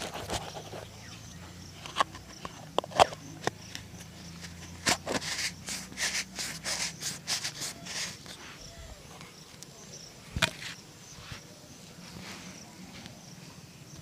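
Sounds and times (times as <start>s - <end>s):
brush strokes on leather: 5.2s - 8.7s.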